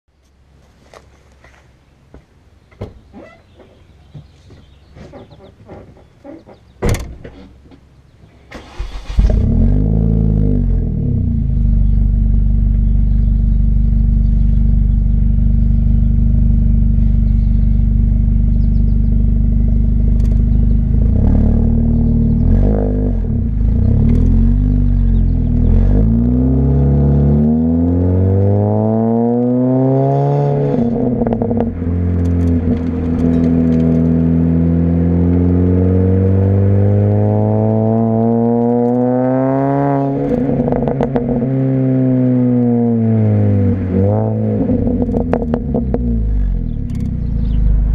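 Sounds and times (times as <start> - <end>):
car engine starting and revving: 8.5 - 47.9.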